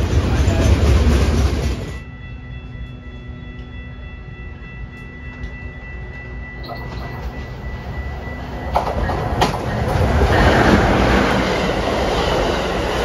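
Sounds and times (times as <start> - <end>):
train rumble: 0.0 - 13.0
faint high-pitched tone: 2.0 - 8.5.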